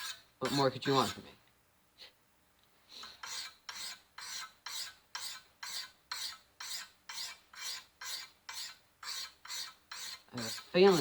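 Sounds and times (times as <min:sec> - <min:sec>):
knife rasping on whetstone: 0:03.0 - 0:11.0.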